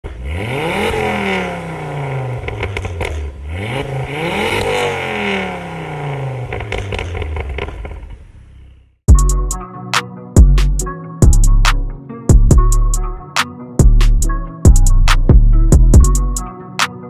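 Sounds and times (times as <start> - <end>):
car engine revving: 0.0 - 8.9
sharp exhaust crackles: 0.1 - 8.8.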